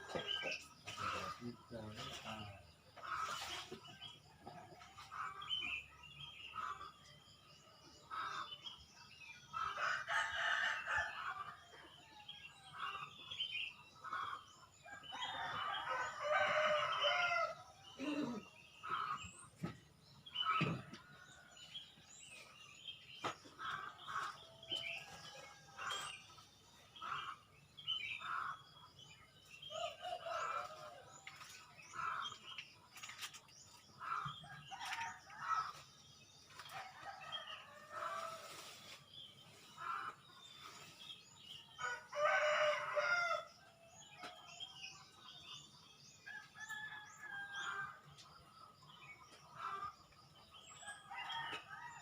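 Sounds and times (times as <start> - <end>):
rooster crowing: 41.8 - 43.5.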